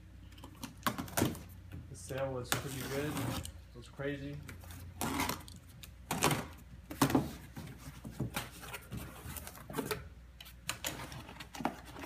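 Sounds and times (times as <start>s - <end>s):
cardboard scraping: 2.5s - 3.5s.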